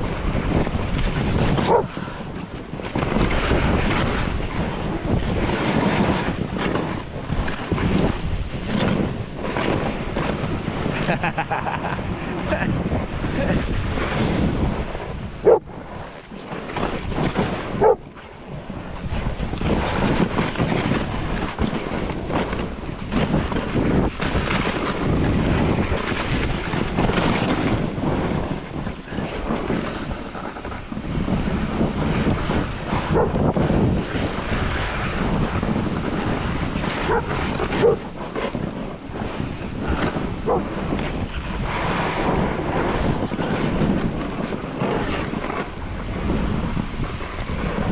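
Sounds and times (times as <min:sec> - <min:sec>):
snowboards sliding on snow: 0:00.0 - 0:47.9
wind buffeting microphone: 0:00.0 - 0:47.9
dog barking: 0:01.6 - 0:01.9, 0:15.4 - 0:15.7, 0:17.8 - 0:18.0, 0:33.1 - 0:33.4, 0:37.1 - 0:38.0, 0:40.4 - 0:40.7.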